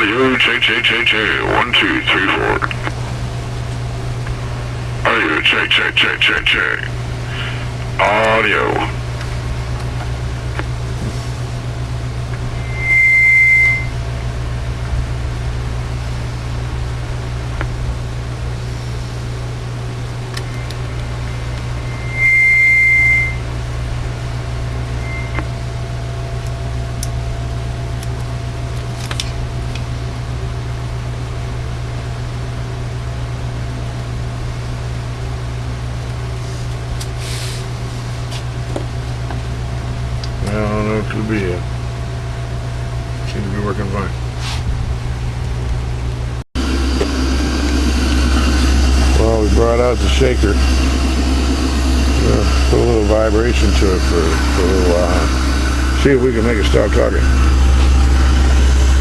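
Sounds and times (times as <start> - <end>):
low electrical hum: 0.0 - 59.0
high electronic beep: 12.6 - 14.0, 20.7 - 23.4, 25.0 - 25.5.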